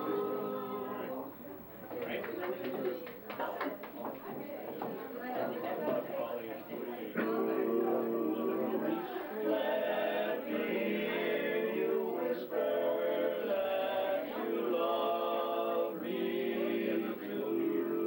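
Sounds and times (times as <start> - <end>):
male vocal quartet singing: 0.0 - 1.3, 7.0 - 18.0.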